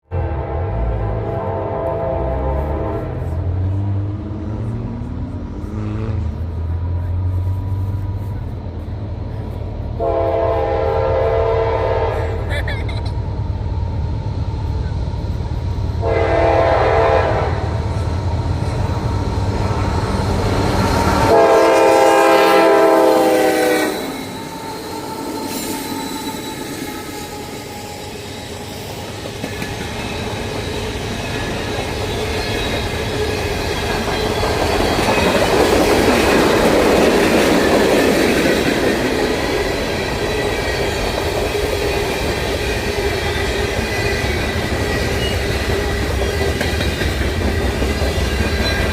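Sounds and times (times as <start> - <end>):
train horn blasts: 0.0 - 3.6, 10.0 - 12.4, 16.0 - 17.8, 21.2 - 24.4
diesel locomotive rumble: 0.0 - 48.9
train cars clickety-clack: 14.7 - 48.9
faint wheel squeal: 23.8 - 29.1.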